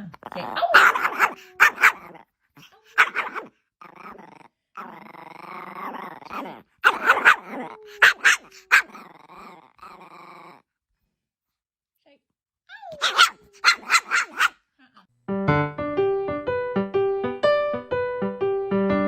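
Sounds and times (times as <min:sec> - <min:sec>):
dog growling: 0:00.0 - 0:10.7, 0:12.9 - 0:14.5
dog barking: 0:00.7 - 0:02.2, 0:02.9 - 0:03.5, 0:06.8 - 0:09.0, 0:12.9 - 0:14.6.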